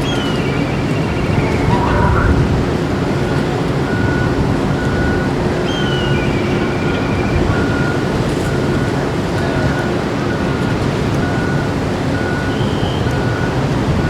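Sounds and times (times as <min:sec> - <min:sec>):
faint high chirps: 0:00.0 - 0:02.4
ship engines rumbling: 0:00.0 - 0:14.0.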